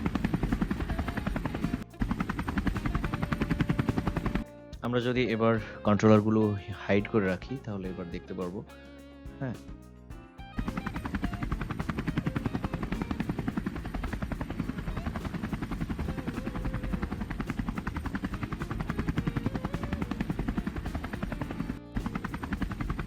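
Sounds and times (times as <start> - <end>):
helicopter rotor chop: 0.0 - 4.5, 10.5 - 23.0
faint wavering whine: 0.0 - 4.8, 10.4 - 23.0.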